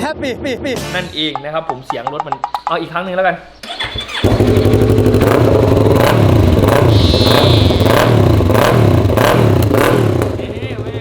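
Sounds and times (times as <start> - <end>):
motorcycle engine revving: 3.6 - 11.0.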